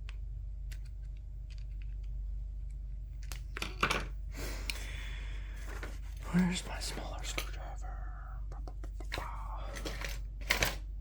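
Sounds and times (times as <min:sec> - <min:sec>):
plastic parts clicking: 0:00.0 - 0:02.1, 0:03.2 - 0:04.9, 0:08.6 - 0:10.9
steady low hum: 0:00.0 - 0:11.0.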